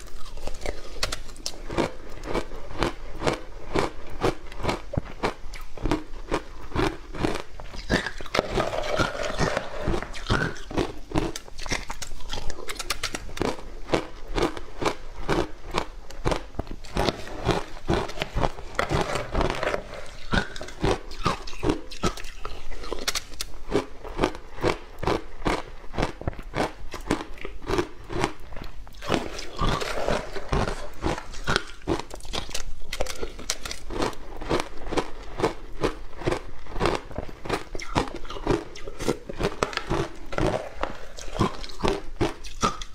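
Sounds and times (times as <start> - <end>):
person chewing something crunchy: 0.0 - 42.9.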